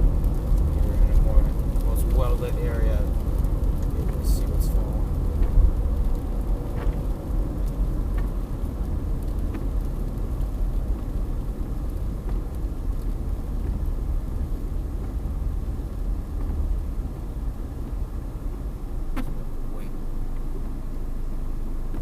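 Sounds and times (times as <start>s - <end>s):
gusty wind buffeting microphone: 0.0s - 20.8s
faint ticks: 5.3s - 19.4s.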